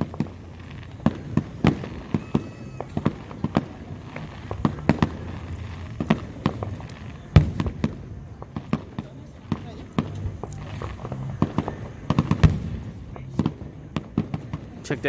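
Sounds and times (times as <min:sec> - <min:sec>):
fireworks bangs and pops: 0:00.0 - 0:15.0
low rumble: 0:02.8 - 0:08.7.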